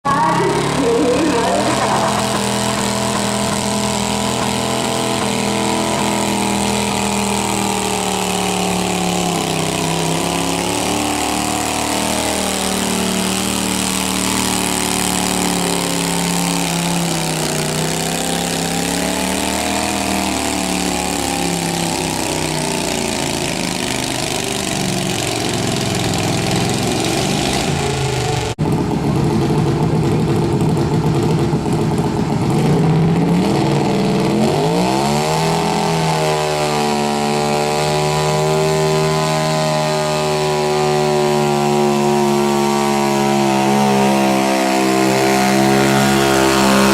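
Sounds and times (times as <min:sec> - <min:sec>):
tractor engine straining: 0:00.0 - 0:46.9.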